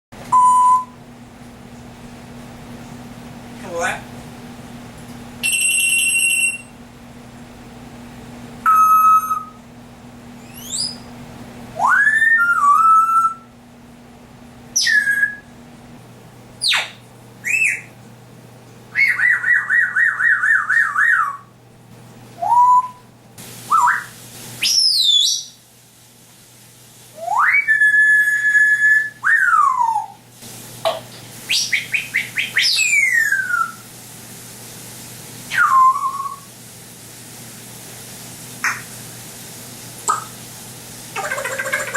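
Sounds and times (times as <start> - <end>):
parrot beep-like tones: 0.3 - 1.0, 5.4 - 6.7, 8.6 - 9.6
parrot whistling: 5.4 - 6.8, 8.6 - 9.6, 10.4 - 11.1, 11.8 - 13.5, 14.7 - 15.5, 16.6 - 17.9, 18.9 - 21.5, 22.4 - 23.0, 23.7 - 25.6, 27.2 - 30.2, 31.5 - 33.9, 35.5 - 36.5, 38.6 - 38.9, 41.2 - 41.9
parrot warbling trill: 16.6 - 17.9, 18.9 - 21.5, 41.2 - 41.9.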